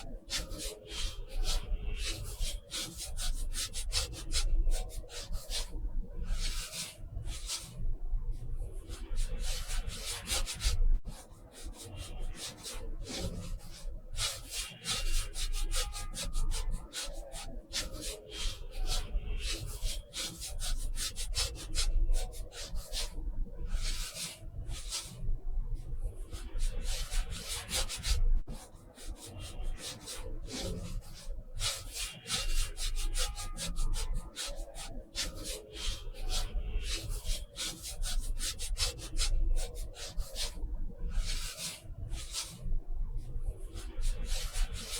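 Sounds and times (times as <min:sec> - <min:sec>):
paintbrush scratching on paper: 0:26.4 - 0:42.6.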